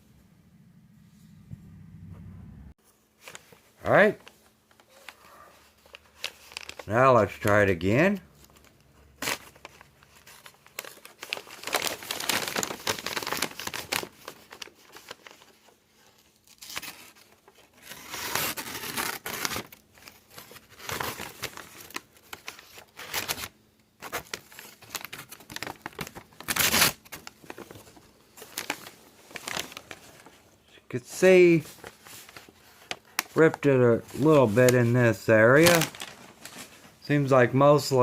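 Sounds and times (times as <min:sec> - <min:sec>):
knife tearing paper: 0:16.4 - 0:19.8.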